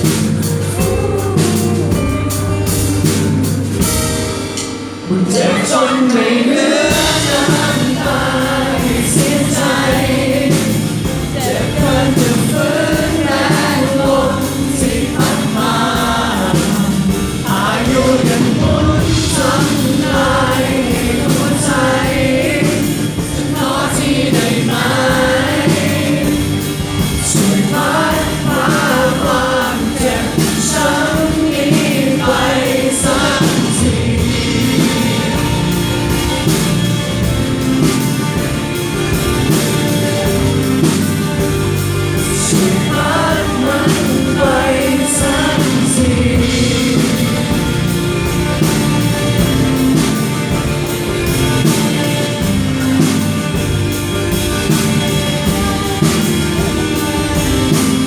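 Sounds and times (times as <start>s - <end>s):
person singing: 0.0s - 4.0s, 5.1s - 36.2s, 39.5s - 50.6s
rock band playing live: 0.0s - 58.0s.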